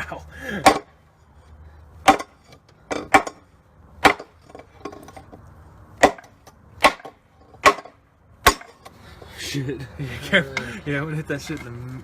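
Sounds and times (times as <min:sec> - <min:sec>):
hammer striking wooden plank: 0:00.6 - 0:00.9, 0:02.0 - 0:03.4, 0:04.0 - 0:04.6, 0:06.0 - 0:08.9.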